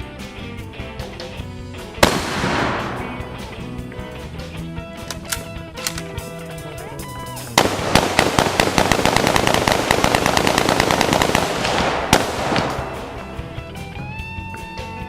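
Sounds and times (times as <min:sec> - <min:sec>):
background music: 0:00.0 - 0:15.0
rapid crackling bangs: 0:02.0 - 0:03.6, 0:07.6 - 0:13.6.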